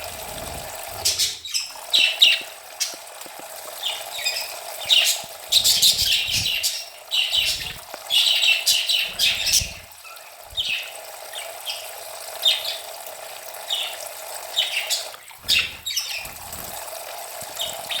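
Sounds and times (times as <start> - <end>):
wings flapping: 0.0 - 10.9, 15.0 - 18.0
running water: 0.0 - 18.0
budgerigars chirping: 1.0 - 3.0, 3.8 - 11.8, 13.7 - 16.8.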